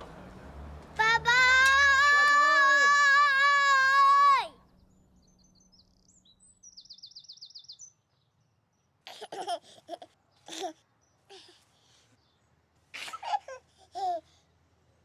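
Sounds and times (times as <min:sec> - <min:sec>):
birds chirping: 0:03.1 - 0:09.6
baby-like laughing and babbling: 0:09.1 - 0:11.6, 0:13.0 - 0:14.4.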